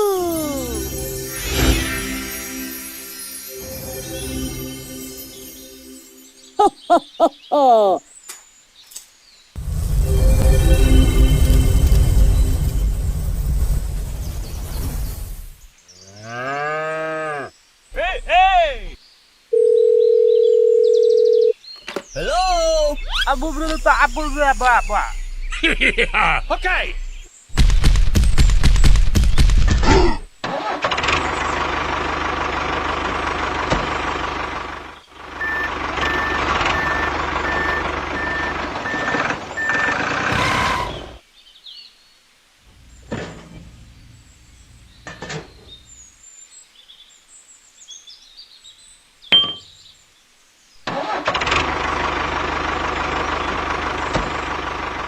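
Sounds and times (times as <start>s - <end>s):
small motor running: 35.4s - 40.0s
short even beeps: 35.4s - 40.1s.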